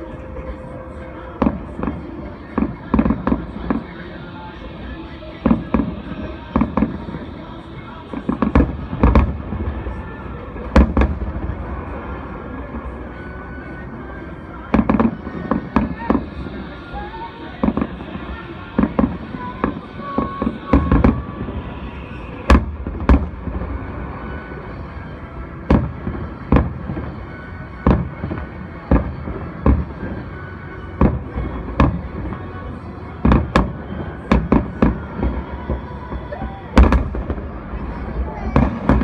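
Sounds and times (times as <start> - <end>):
distant firework bangs: 33.2 - 39.0.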